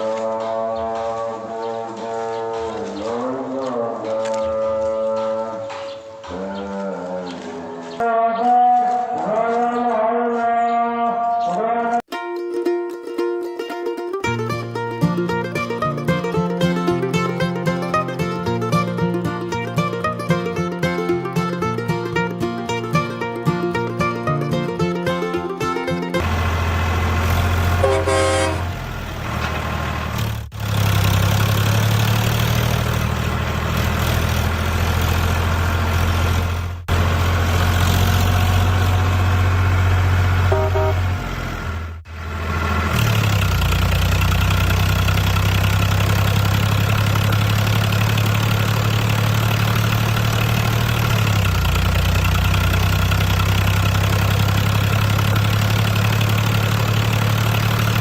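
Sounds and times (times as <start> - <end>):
short tones: 40.5 - 41.2.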